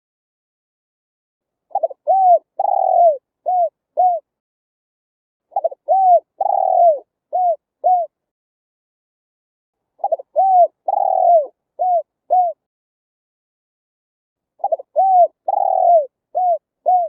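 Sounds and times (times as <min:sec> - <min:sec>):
dove cooing: 0:01.7 - 0:04.3, 0:05.5 - 0:08.2, 0:10.0 - 0:12.6, 0:14.6 - 0:17.0.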